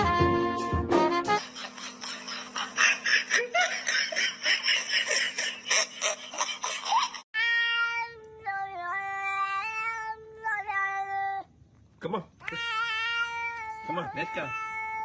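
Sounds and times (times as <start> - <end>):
cat meowing: 12.4 - 15.0.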